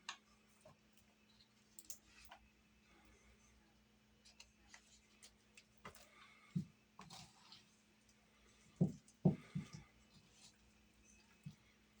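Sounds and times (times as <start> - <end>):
faint steady hum: 0.0 - 12.0
dough being mixed by hand: 4.1 - 12.0.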